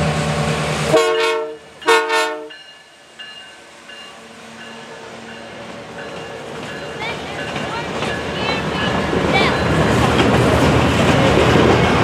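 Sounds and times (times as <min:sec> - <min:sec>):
train wheels rumbling on rail: 0:00.0 - 0:12.0
locomotive air horn blast: 0:00.8 - 0:02.6.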